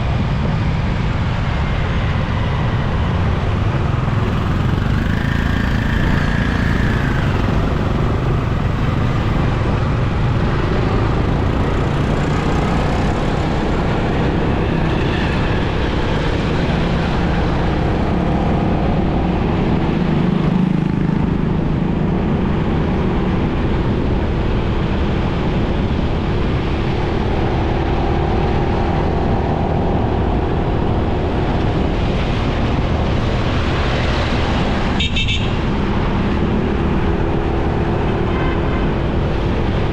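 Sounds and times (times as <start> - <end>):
passing traffic: 0.0 - 39.9
motorcycle engine: 1.6 - 23.5.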